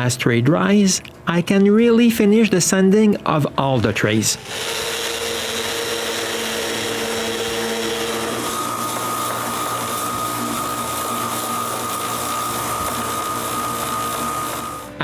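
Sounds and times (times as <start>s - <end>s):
power sander on wood: 4.4s - 15.0s.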